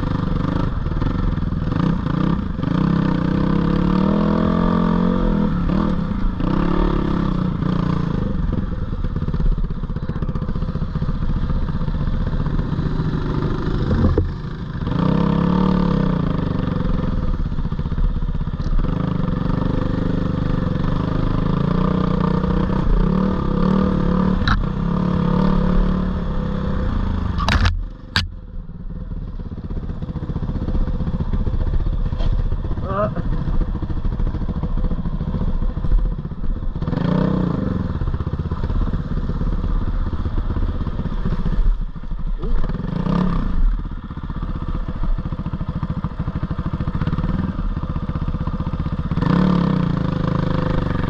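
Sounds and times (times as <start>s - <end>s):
dirt bike engine revving: 20.9s - 28.3s, 49.1s - 51.0s
sharp knocks: 27.4s - 28.4s.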